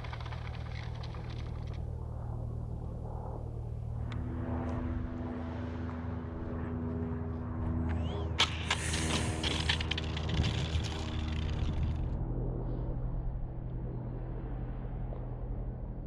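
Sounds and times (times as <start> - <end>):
electric ducted fan running: 0.0 - 12.2
steady pitched whine: 6.0 - 16.0.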